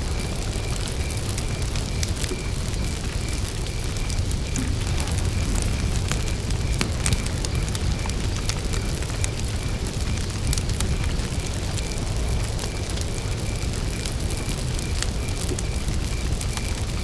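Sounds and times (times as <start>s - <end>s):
campfire crackling: 0.0s - 17.0s
cricket chirping: 0.0s - 17.0s.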